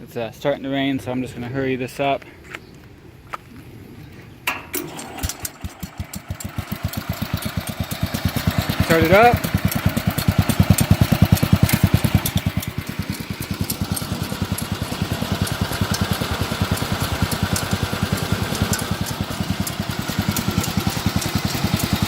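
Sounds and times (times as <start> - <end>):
garden tractor engine running: 4.4 - 22.0.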